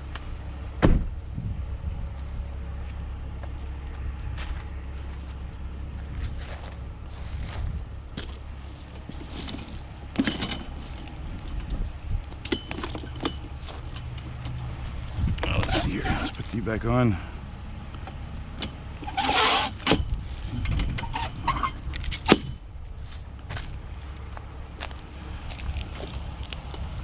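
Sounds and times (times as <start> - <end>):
steady low hum: 0.0 - 27.0
metal scrap clanking: 9.1 - 11.8, 12.4 - 14.8, 18.6 - 22.6.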